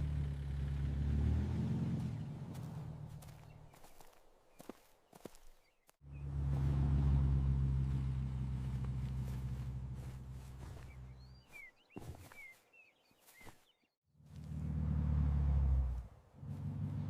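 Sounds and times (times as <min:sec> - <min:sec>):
low rumbling hum: 0:06.1 - 0:11.4.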